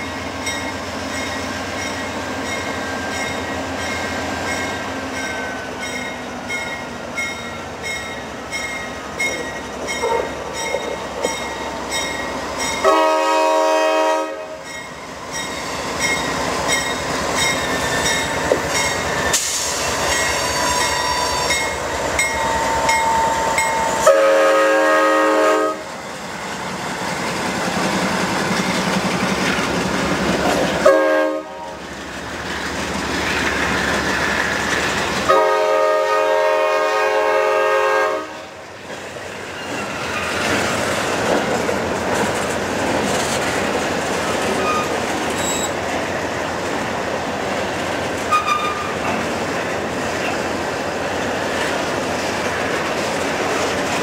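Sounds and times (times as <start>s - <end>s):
train wheels clacking over rail joints: 7.9s - 13.0s, 14.7s - 23.9s, 38.8s - 46.9s
locomotive air horn blasts: 12.8s - 14.6s, 23.2s - 25.9s, 30.8s - 31.8s, 35.3s - 38.5s.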